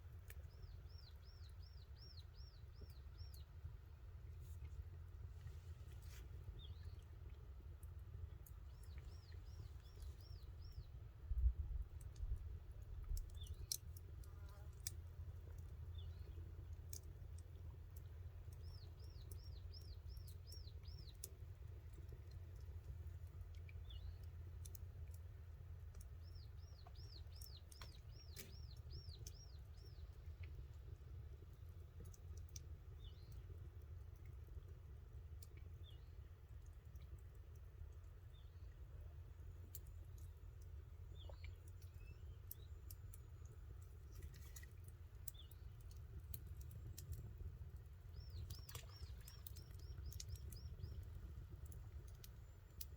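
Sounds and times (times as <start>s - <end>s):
bird chirping: 48.1s - 51.4s.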